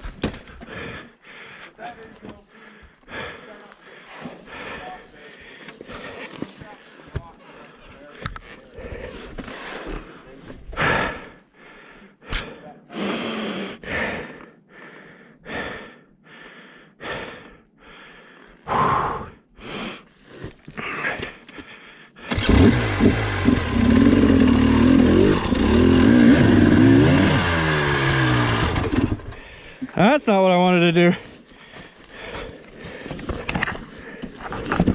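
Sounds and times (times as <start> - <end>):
person panting hard: 0.2 - 22.6, 27.4 - 30.0, 31.0 - 34.9
dirt bike engine revving: 22.3 - 29.5.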